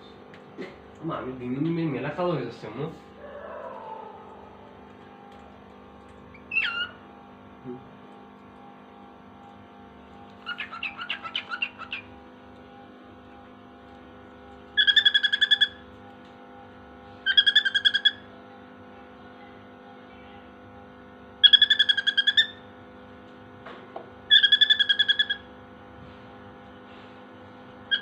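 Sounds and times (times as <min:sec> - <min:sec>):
bird imitating pulsed beeps: 0:14.8 - 0:15.8.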